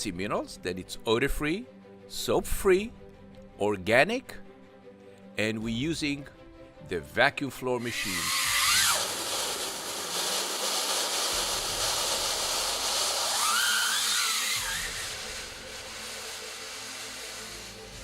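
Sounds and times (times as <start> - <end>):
whistling tone: 7.8 - 9.1, 13.2 - 15.5
vacuum machine sucking air: 7.8 - 18.0.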